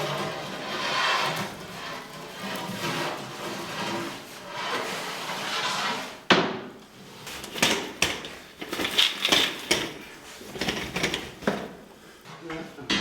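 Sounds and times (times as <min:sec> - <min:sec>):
tools and trays knocking: 0:07.4 - 0:11.9.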